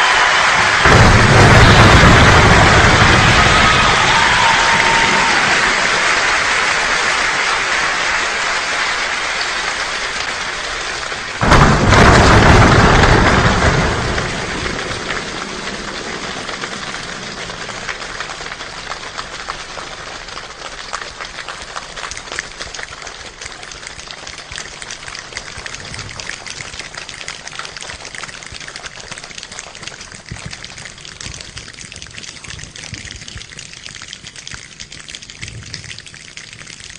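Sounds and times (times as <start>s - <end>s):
loud thunderclap-like burst: 0.0s - 6.5s, 11.3s - 18.9s
imitated rain patter: 0.0s - 36.9s.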